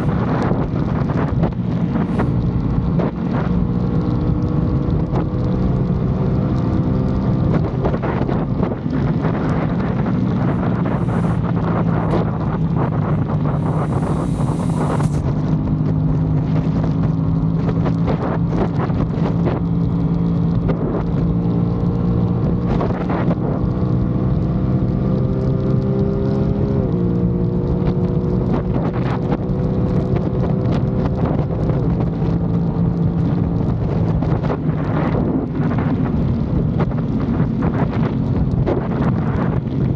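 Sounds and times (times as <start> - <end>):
motorcycle engine running: 0.0 - 22.8
wind noise on microphone: 0.0 - 39.9.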